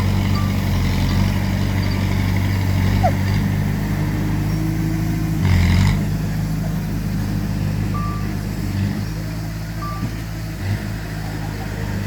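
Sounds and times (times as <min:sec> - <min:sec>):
heavy diesel engine running: 0:00.0 - 0:12.0
reversing alarm beep: 0:00.3 - 0:00.8, 0:07.9 - 0:08.4, 0:09.8 - 0:10.2.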